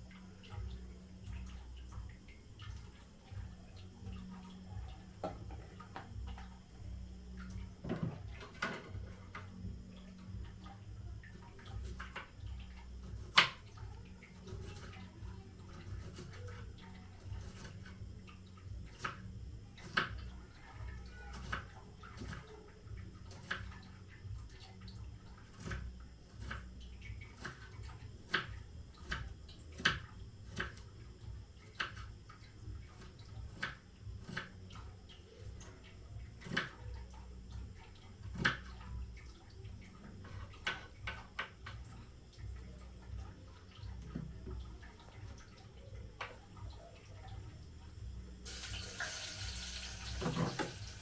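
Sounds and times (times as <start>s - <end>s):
light water splashes: 0.0s - 51.0s
low steady hum: 0.0s - 51.0s.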